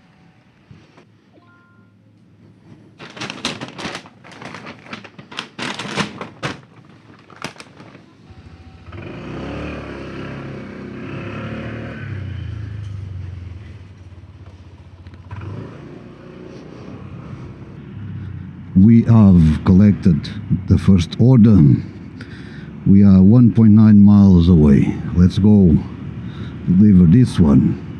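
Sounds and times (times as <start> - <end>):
vehicle engine running: 8.2 - 23.5.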